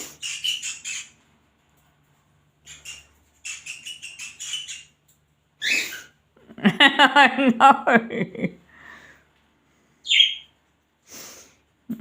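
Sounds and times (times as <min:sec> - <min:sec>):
pet birds chirping: 0:00.0 - 0:01.4, 0:02.6 - 0:06.2, 0:10.0 - 0:10.6.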